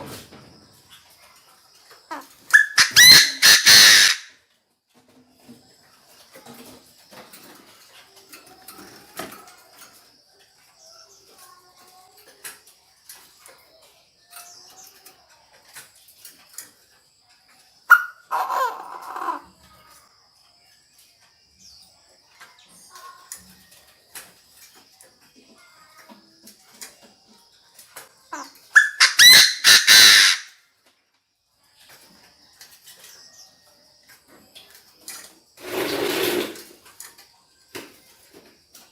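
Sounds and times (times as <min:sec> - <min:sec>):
bird harsh loud call: 0:02.1 - 0:04.4, 0:17.9 - 0:19.5, 0:28.4 - 0:30.6
faint scattered ticks: 0:04.4 - 0:28.8.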